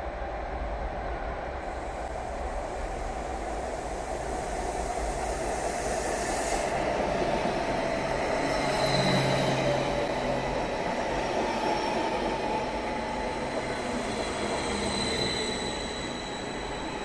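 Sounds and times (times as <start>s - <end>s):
electric train rolling rumble: 0.0s - 17.0s.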